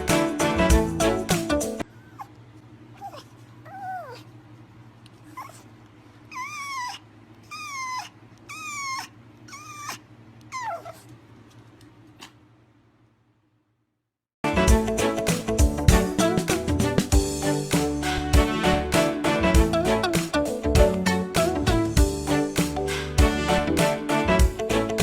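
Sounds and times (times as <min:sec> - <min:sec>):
pet animal crying out: 0:06.3 - 0:11.1.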